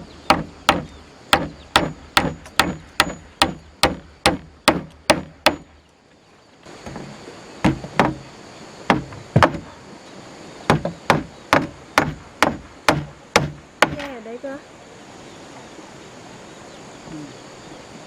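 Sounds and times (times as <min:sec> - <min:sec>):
wood chopping strikes: 0:00.3 - 0:05.8, 0:06.8 - 0:08.2, 0:08.9 - 0:09.7, 0:10.7 - 0:14.2.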